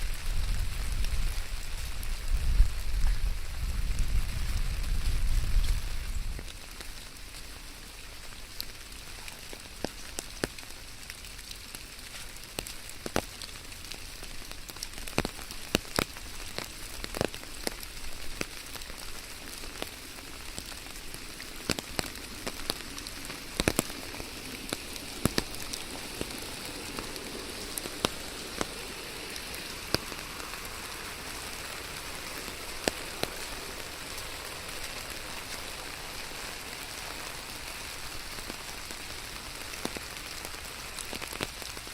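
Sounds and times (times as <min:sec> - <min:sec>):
rain falling: 0:00.0 - 0:41.9.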